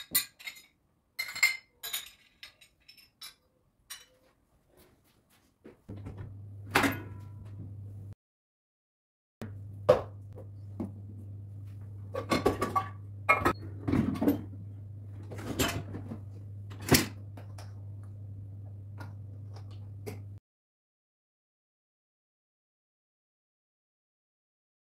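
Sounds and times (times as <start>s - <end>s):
knocks and clattering of objects: 11.8s - 14.6s, 15.2s - 18.0s.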